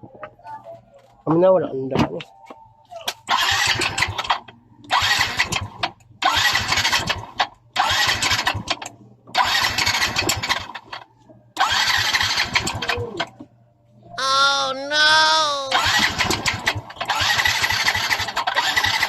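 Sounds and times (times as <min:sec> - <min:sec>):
scooter electric starter cranking: 0:03.3 - 0:11.0, 0:11.6 - 0:13.0, 0:15.7 - 0:19.0.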